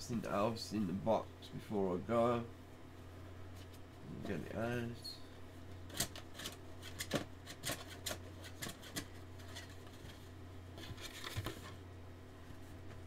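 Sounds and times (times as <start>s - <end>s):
steady low hum: 0.0s - 13.0s
cardboard packaging rustling: 5.9s - 11.8s.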